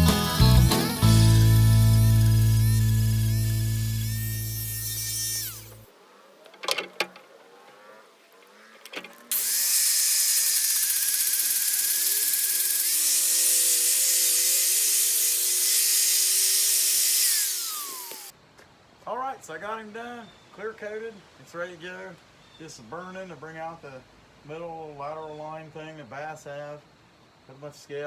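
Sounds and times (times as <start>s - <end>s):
rotary power tool whining: 0.0s - 5.9s, 9.1s - 18.3s.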